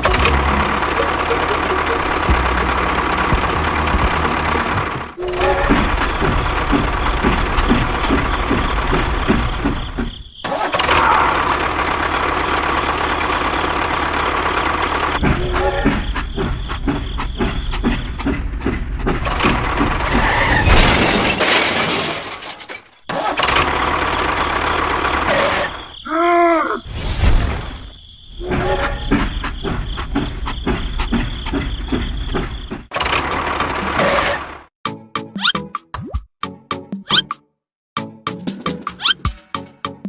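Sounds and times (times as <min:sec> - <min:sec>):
tone rising and falling: 0:00.0 - 0:06.4
engine running with knocking beat: 0:00.0 - 0:10.2, 0:11.4 - 0:20.0.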